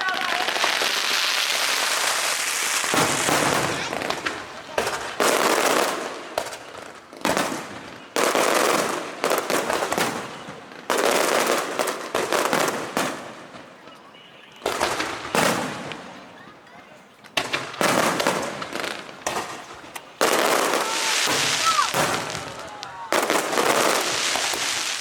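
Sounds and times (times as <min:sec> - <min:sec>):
firework shells bursting: 0:00.0 - 0:10.2, 0:17.3 - 0:25.0
trailing hiss of fireworks: 0:00.0 - 0:13.8, 0:14.6 - 0:16.3, 0:17.4 - 0:25.0.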